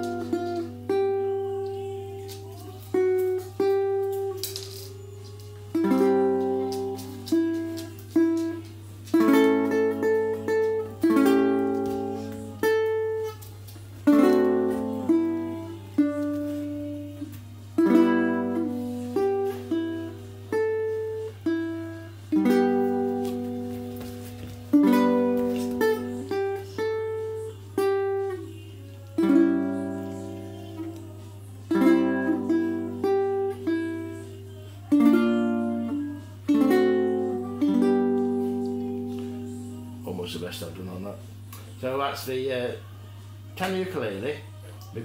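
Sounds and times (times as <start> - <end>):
ukulele plucked chords and notes: 0.0 - 28.5, 29.1 - 41.8.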